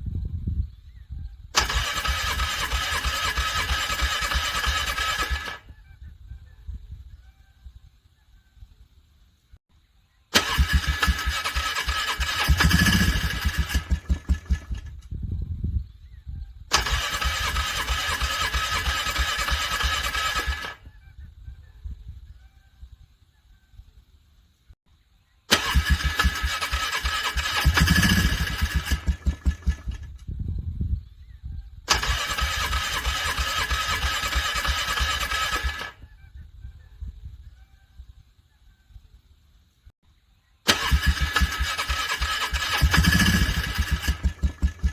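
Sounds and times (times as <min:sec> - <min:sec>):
atv engine cranking on starter: 0:01.6 - 0:05.6, 0:10.4 - 0:15.1, 0:16.7 - 0:20.8, 0:25.5 - 0:30.3, 0:31.9 - 0:36.0, 0:40.7 - 0:44.9.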